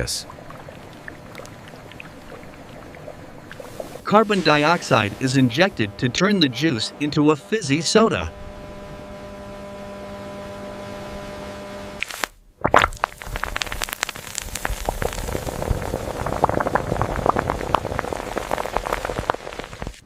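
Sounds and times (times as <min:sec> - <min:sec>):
soda fizzing: 0:00.0 - 0:05.8, 0:12.0 - 0:20.0
machine hum: 0:00.0 - 0:12.0.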